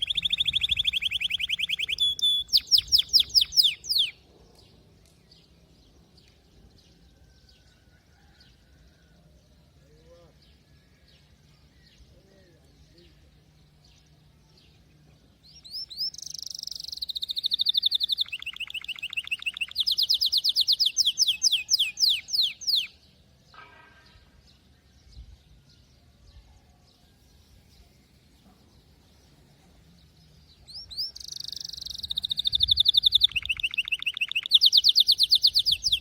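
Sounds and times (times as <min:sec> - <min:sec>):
canary singing rapid trills: 0:00.0 - 0:04.2, 0:15.6 - 0:23.0, 0:30.6 - 0:36.0
faint bird chirps: 0:00.0 - 0:36.0.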